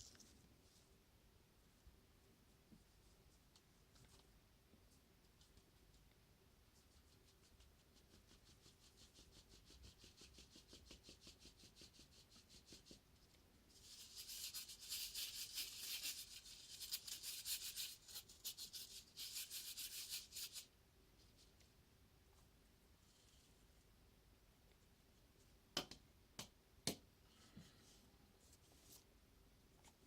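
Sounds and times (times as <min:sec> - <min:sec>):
scratchy rubbing strokes: 0:13.7 - 0:21.5.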